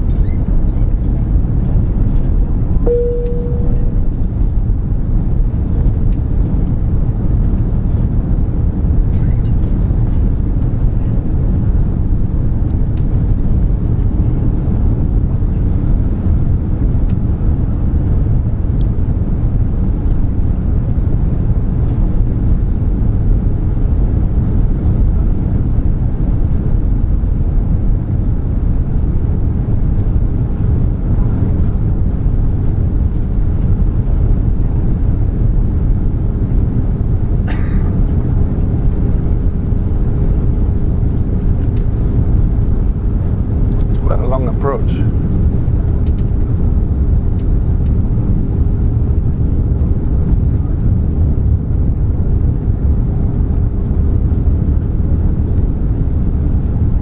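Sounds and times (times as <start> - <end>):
airplane cabin engine rumble: 0.0 - 57.0
faint steady hum: 2.8 - 5.8.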